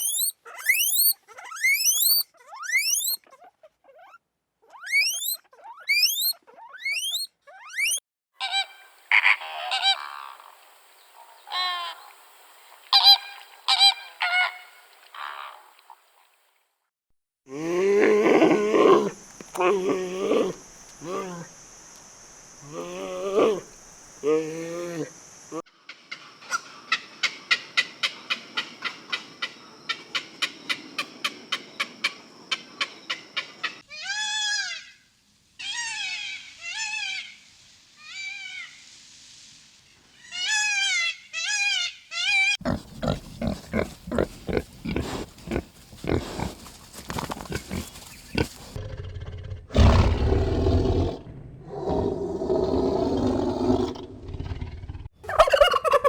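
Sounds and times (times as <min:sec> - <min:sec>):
animal calls rising and falling: 0:00.0 - 0:03.3, 0:04.0 - 0:08.0, 0:55.2 - 0:56.0
rapid pulsed animal sounds: 0:00.0 - 0:03.6, 0:04.8 - 0:08.0, 0:42.6 - 0:50.2, 0:52.9 - 0:56.0.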